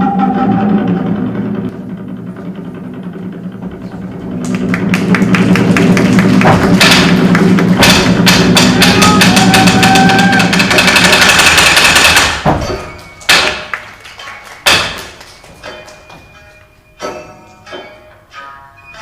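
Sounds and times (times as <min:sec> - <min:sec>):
held high notes: 0:00.0 - 0:10.8
fast dense percussion: 0:00.0 - 0:13.8.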